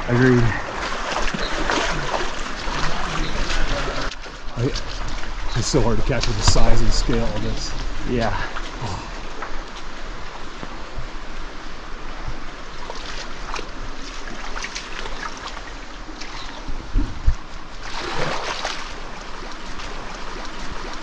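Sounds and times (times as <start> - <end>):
water splashing: 0.0 - 10.5, 12.6 - 21.0
stream water running: 0.0 - 21.0
short low bumps: 2.9 - 9.5.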